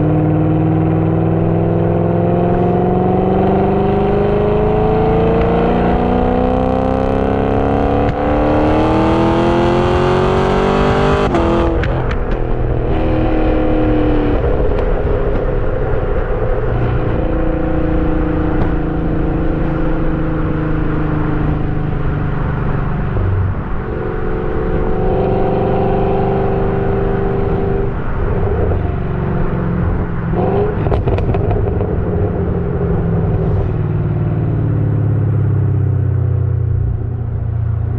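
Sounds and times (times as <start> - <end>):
car engine accelerating: 0.0 - 37.9
exhaust crackles and pops: 10.8 - 25.6, 27.3 - 34.9.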